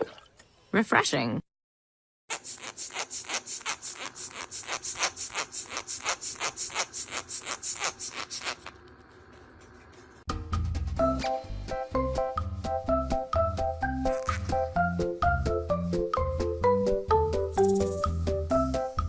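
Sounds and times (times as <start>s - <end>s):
music: 10.3s - 19.0s.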